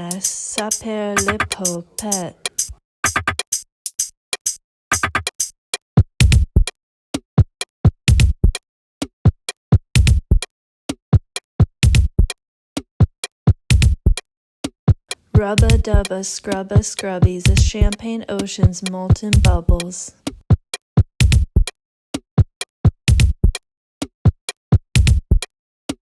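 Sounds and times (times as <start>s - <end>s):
drum machine beat: 0.0s - 5.5s, 6.2s - 6.8s, 8.1s - 8.6s, 10.0s - 10.5s, 11.3s - 21.8s, 22.6s - 23.6s, 24.4s - 25.5s.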